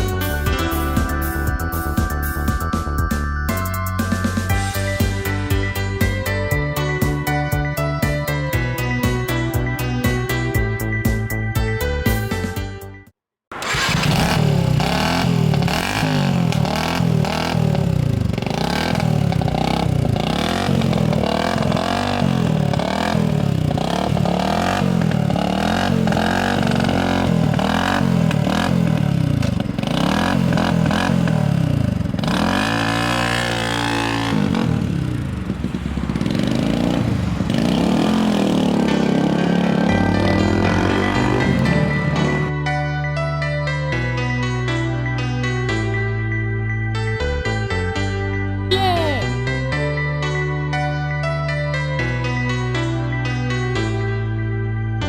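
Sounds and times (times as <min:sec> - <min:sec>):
motorcycle engine revving: 0:13.5 - 0:42.5.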